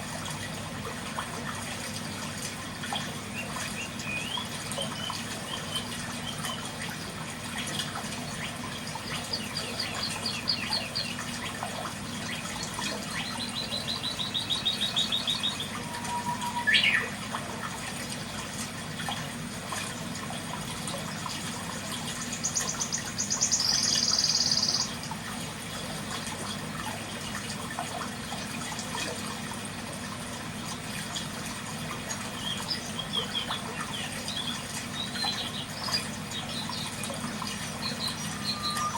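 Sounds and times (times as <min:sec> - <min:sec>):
birdsong trills: 0:02.6 - 0:07.0, 0:07.6 - 0:17.8, 0:22.0 - 0:25.2, 0:32.2 - 0:38.9
rising bird call: 0:15.6 - 0:17.2, 0:38.1 - 0:38.9
buzzy bird call: 0:38.0 - 0:38.9.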